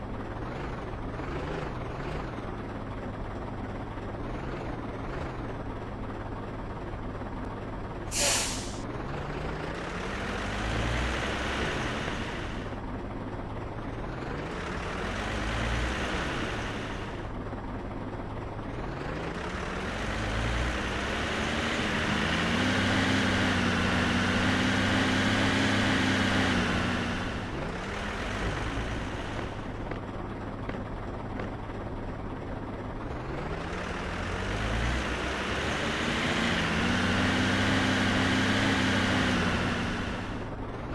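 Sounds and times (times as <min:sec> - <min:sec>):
truck engine revving: 0:00.1 - 0:06.4, 0:08.1 - 0:12.8, 0:13.5 - 0:31.5, 0:32.5 - 0:40.9
air brake hiss: 0:08.1 - 0:08.8.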